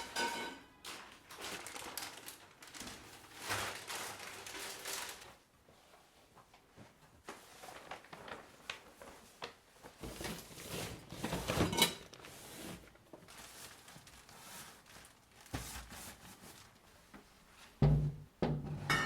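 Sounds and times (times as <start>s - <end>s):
kitchen items knocking and clicking: 0.0s - 0.8s, 10.0s - 12.2s, 17.8s - 19.0s
ringing clatter of kitchen items: 0.0s - 1.0s, 11.2s - 12.2s, 18.6s - 19.0s.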